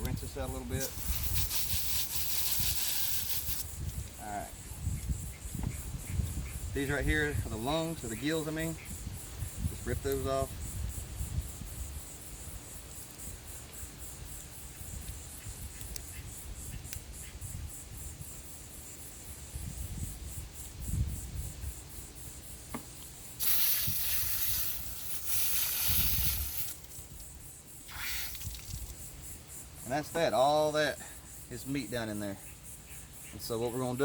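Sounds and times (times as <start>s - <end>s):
garden hose spraying water: 0.0s - 3.9s, 23.0s - 30.1s
insects chirping: 0.0s - 34.0s.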